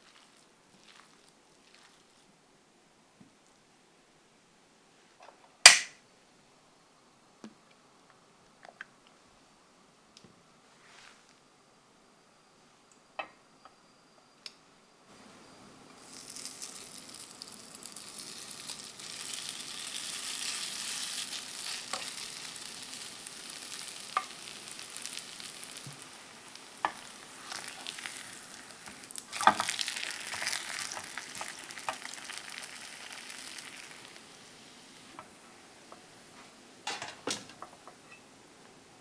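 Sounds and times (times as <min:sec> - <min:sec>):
food sizzling in oil: 0:15.2 - 0:35.2.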